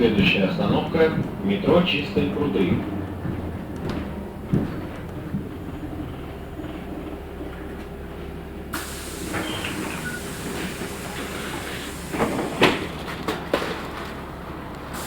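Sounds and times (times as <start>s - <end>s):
bus engine running: 0.0s - 15.0s
compressed air hissing: 8.8s - 12.9s.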